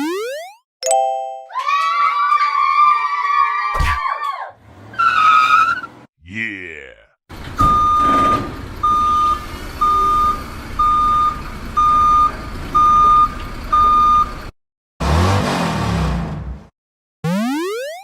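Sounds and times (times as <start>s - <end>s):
truck reversing alarm beeping: 7.6s - 14.5s.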